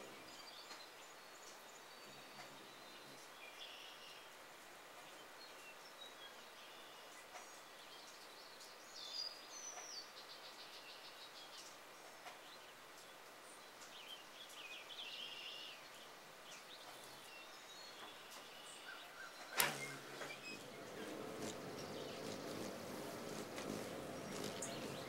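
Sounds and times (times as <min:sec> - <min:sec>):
faint bird chirps: 0:00.0 - 0:04.3, 0:12.5 - 0:25.0
steady outdoor hiss: 0:00.0 - 0:25.0
rapid chattering bird call: 0:18.9 - 0:25.0.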